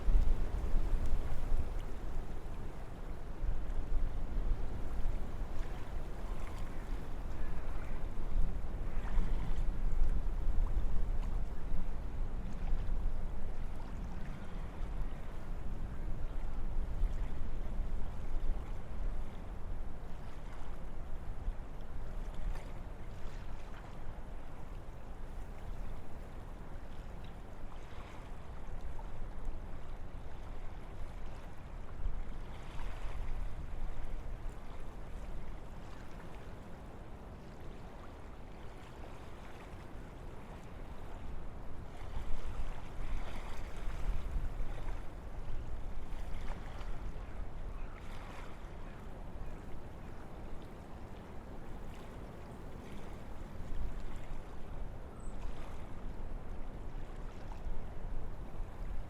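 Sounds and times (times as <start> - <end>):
wind through forest trees: 0.0 - 59.0.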